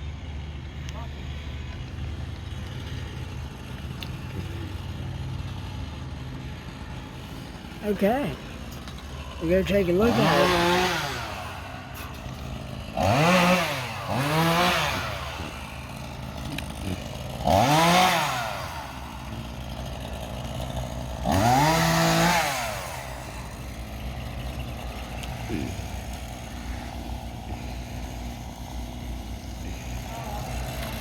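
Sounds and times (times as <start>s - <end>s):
chainsaw idling and revving: 0.0s - 31.0s.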